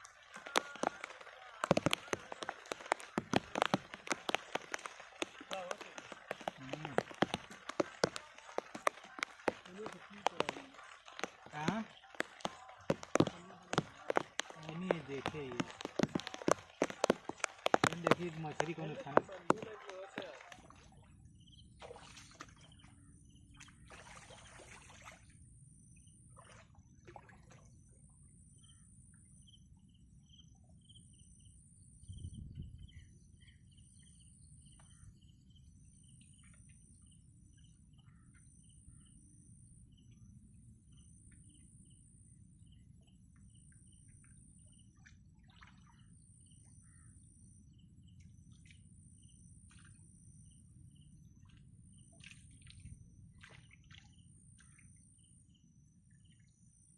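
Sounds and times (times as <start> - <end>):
small chirps: 0.0 - 25.2
insect trill pulsing: 0.0 - 56.9.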